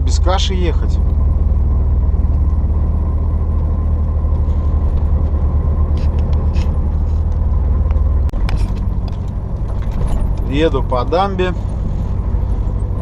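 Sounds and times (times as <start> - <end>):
truck engine and road drone: 0.0 - 13.0.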